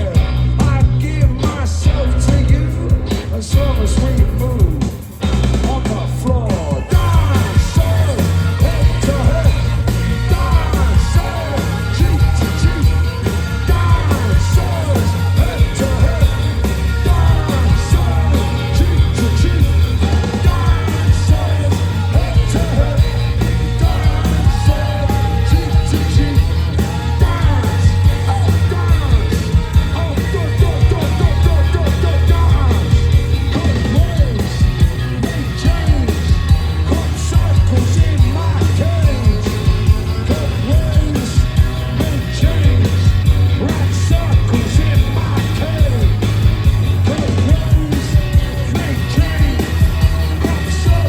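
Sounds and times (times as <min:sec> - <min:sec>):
drums: 0:00.0 - 0:51.0
heavy bass: 0:00.0 - 0:51.0
punk rock band playing: 0:00.0 - 0:51.0
shouted vocals: 0:05.5 - 0:51.0
person singing: 0:05.7 - 0:34.4.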